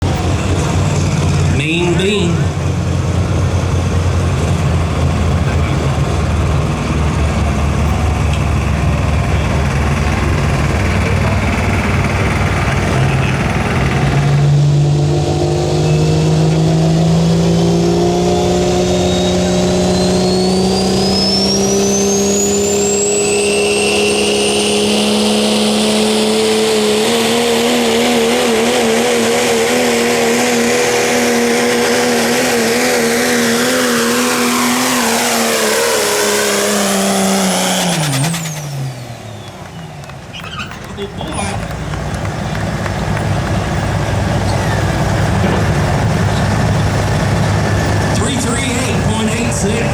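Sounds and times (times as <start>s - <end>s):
diesel engine revving: 0.0s - 49.9s
turbo whistle: 18.8s - 24.8s.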